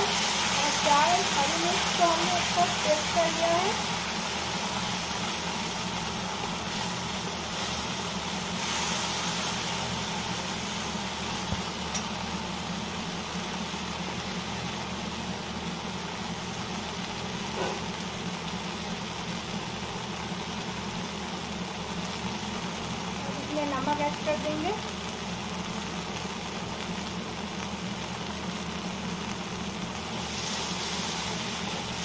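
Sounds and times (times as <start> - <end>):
paste sizzling in oil: 0.0 - 32.0.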